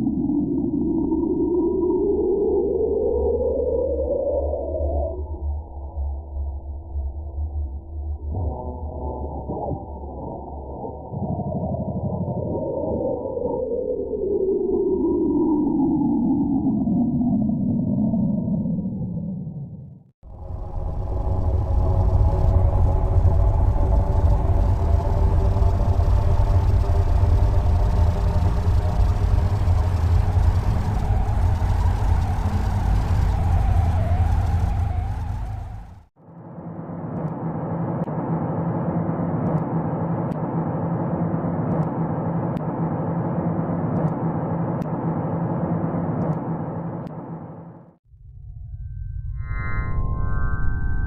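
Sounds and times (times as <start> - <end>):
dense low drone: 0.0 - 51.0
steady deep rumble: 17.2 - 36.1
faint sustained tones: 20.3 - 36.0.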